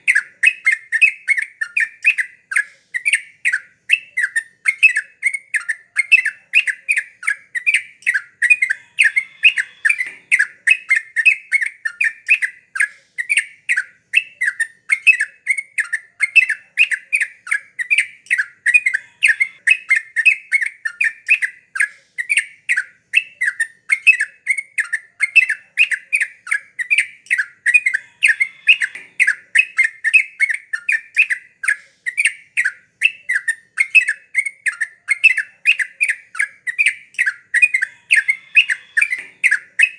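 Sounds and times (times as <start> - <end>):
bulbul singing bubbly chatter: 32.1 - 39.9.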